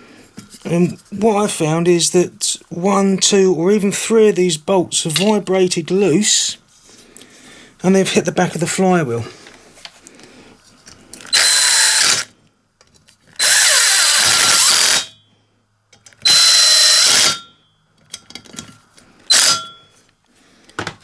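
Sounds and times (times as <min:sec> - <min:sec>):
power drill driving bolts: 0:11.3 - 0:12.3, 0:13.4 - 0:15.1, 0:16.2 - 0:17.5, 0:19.3 - 0:19.8.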